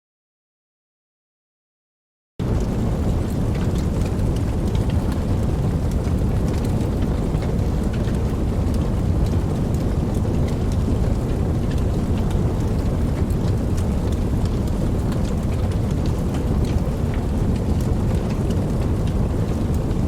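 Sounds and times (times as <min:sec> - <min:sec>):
campfire crackling and popping: 0:02.4 - 0:20.0
low rumble of flames: 0:02.4 - 0:20.0.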